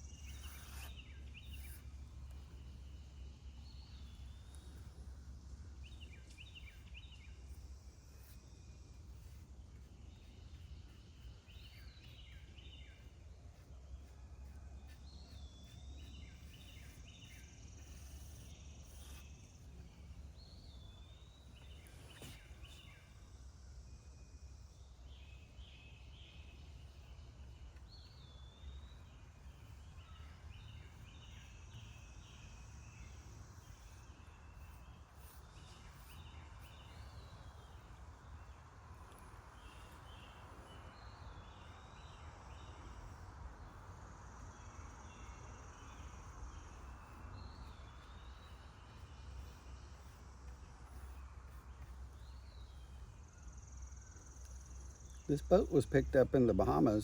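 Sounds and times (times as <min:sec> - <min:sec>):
songbird singing repeated phrase: 0:54.0 - 0:57.0.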